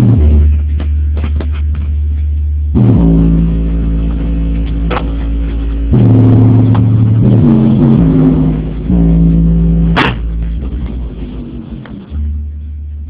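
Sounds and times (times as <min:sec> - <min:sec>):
bass-heavy music through car speakers: 0:00.0 - 0:13.0
sharp hit: 0:02.8 - 0:12.4.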